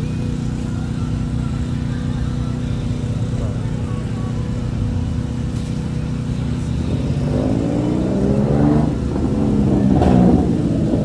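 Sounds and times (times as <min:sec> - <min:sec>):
steady engine hum: 0:00.0 - 0:11.0
car accelerating past: 0:06.8 - 0:11.0.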